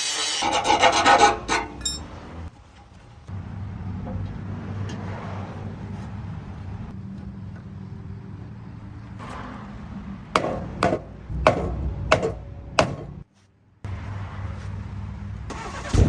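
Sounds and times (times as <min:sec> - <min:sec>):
sharp knocks: 0:10.4 - 0:13.2
car engine idling: 0:15.2 - 0:16.0.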